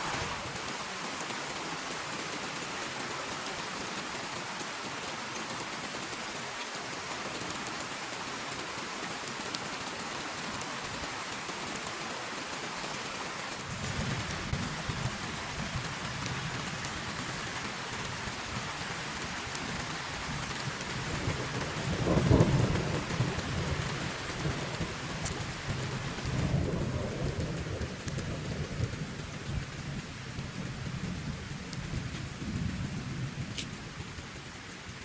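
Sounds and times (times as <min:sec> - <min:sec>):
heavy rain falling: 0:00.0 - 0:35.0
thunder rumbling: 0:18.6 - 0:34.1.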